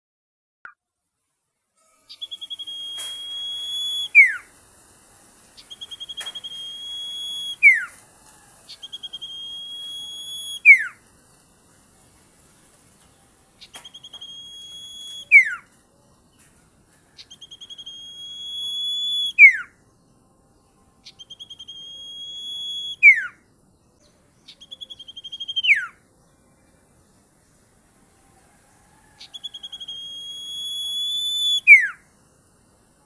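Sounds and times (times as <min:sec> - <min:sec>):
shrill bird calls: 0:01.9 - 0:11.0, 0:13.6 - 0:15.7, 0:17.2 - 0:19.8, 0:21.0 - 0:26.0, 0:29.0 - 0:32.0.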